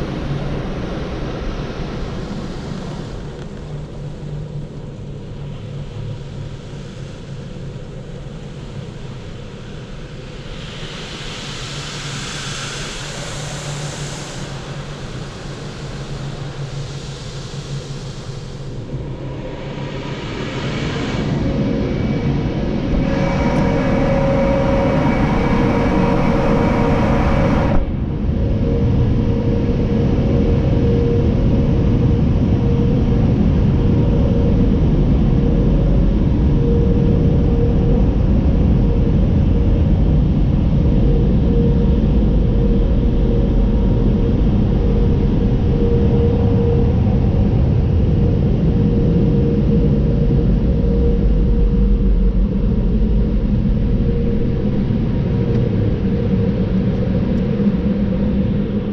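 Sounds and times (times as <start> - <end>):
loud low rumble: 19.0 - 58.9.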